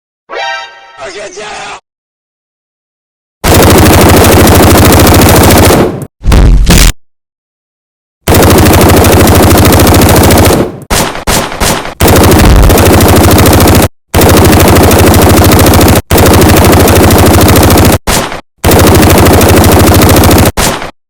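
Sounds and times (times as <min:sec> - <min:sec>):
machine-gun fire: 0:03.4 - 0:07.0, 0:08.3 - 0:20.9.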